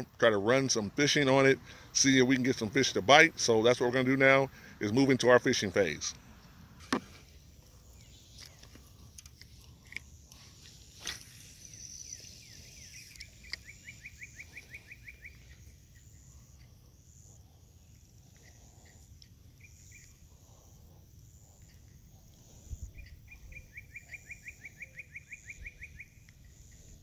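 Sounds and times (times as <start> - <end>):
faint bird chirps: 7.6 - 9.0, 9.6 - 27.0
rapid bird trill: 9.6 - 20.8, 22.7 - 27.0.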